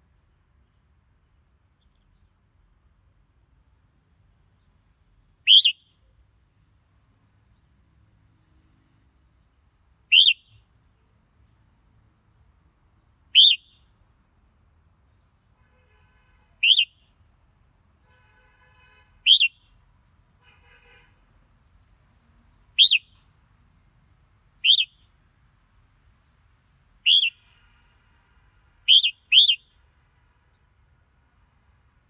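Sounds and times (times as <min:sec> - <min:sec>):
soft bird warbling: 0:05.5 - 0:05.8, 0:10.1 - 0:10.4, 0:13.4 - 0:13.6, 0:16.6 - 0:16.9, 0:19.3 - 0:19.6, 0:22.8 - 0:23.1, 0:24.6 - 0:24.9, 0:27.1 - 0:27.4, 0:28.9 - 0:29.6
bulbul whistled calls: 0:05.5 - 0:05.9, 0:10.1 - 0:10.6, 0:13.4 - 0:13.8, 0:16.6 - 0:17.0, 0:19.2 - 0:19.6, 0:22.7 - 0:23.2, 0:24.6 - 0:25.0, 0:27.0 - 0:27.5, 0:28.9 - 0:29.8.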